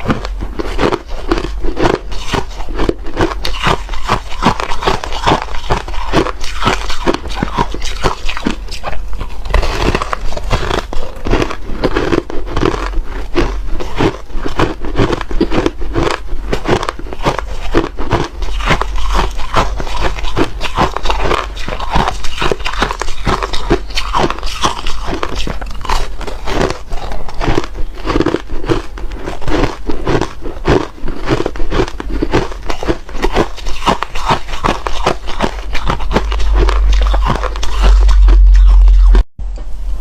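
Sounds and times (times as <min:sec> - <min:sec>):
ice being chewed: 0:00.0 - 0:39.2
loud low rumble: 0:34.7 - 0:40.0.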